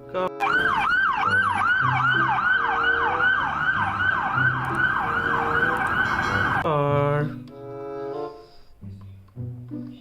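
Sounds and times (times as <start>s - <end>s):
electronic police siren wailing: 0.4s - 6.6s.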